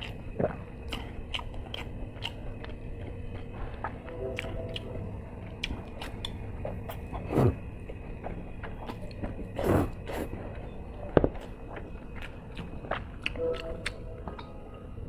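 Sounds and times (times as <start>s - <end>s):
person chewing noodles: 0.0s - 7.6s, 8.6s - 14.8s.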